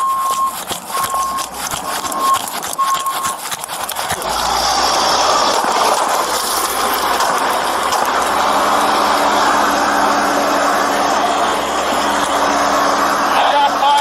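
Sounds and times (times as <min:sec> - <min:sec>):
vehicle engine running: 0:00.0 - 0:14.0
loud rushing noise: 0:04.3 - 0:14.0.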